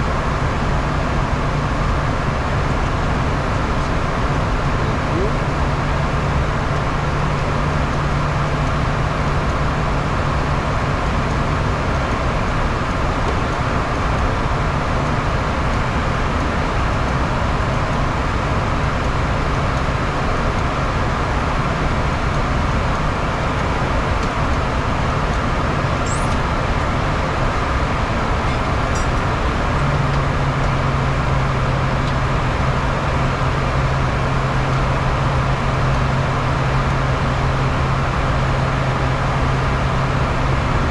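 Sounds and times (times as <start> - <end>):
jet cabin airflow and engine noise: 0.0 - 40.9
low even hum: 23.3 - 37.8.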